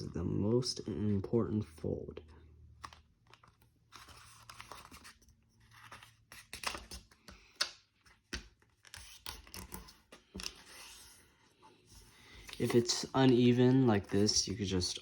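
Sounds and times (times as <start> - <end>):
paper rustling and crinkling: 2.8 - 7.2, 11.9 - 15.0.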